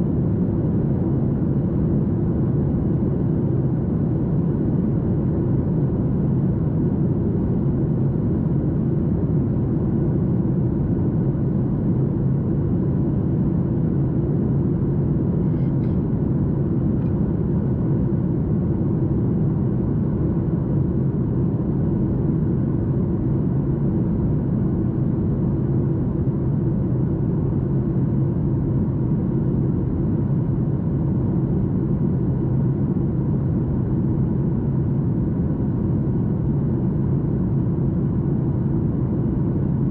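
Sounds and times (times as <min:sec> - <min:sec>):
jet engine cabin rumble: 0:00.0 - 0:39.9.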